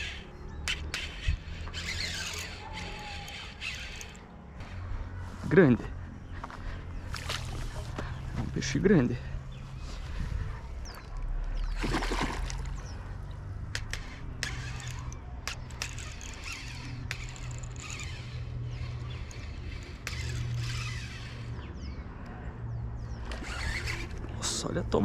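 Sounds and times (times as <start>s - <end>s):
fishing reel clicking: 0.0s - 4.3s, 13.7s - 21.5s
water splashing: 11.7s - 12.8s.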